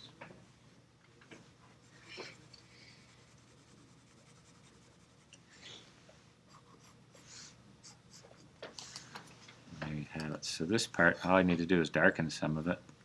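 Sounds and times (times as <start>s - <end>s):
pencil scratching on paper: 1.8s - 5.3s.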